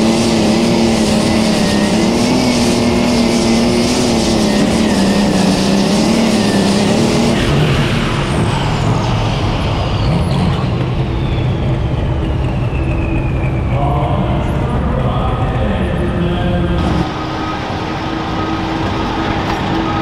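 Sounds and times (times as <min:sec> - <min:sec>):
tractor engine running loud: 0:00.0 - 0:20.0
turbocharger whine: 0:00.0 - 0:20.0.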